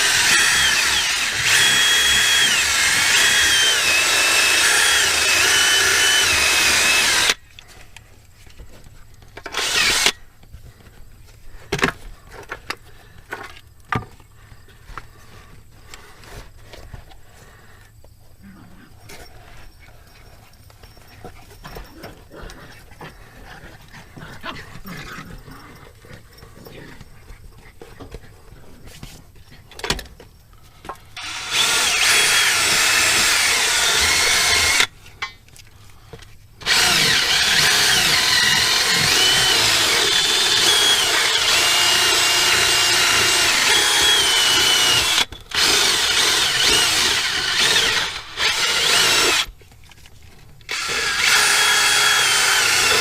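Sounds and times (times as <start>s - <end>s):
power buffing tool on rubber: 0.0s - 7.4s, 9.5s - 10.2s, 31.2s - 34.9s, 36.6s - 49.6s, 50.7s - 53.0s
faint handling noises: 49.5s - 50.7s.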